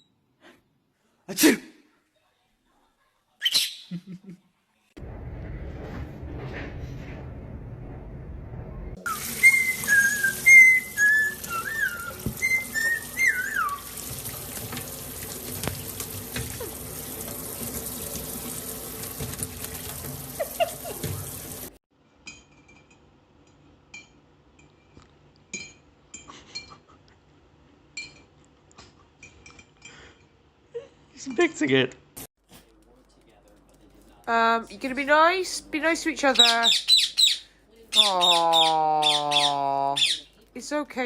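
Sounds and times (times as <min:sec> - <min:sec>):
parrot whistling: 0:09.0 - 0:14.0, 0:36.4 - 0:40.3
water tap running: 0:09.0 - 0:21.8.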